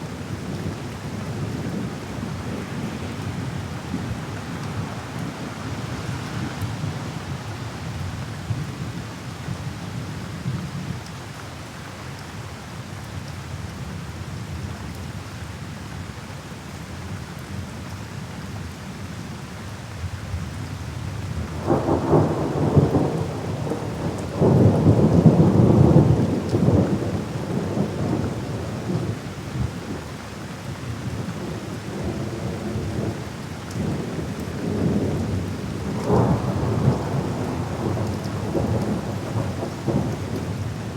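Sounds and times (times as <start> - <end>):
steady rain: 0.0 - 40.9
rolling thunder: 21.5 - 29.9, 33.8 - 40.9.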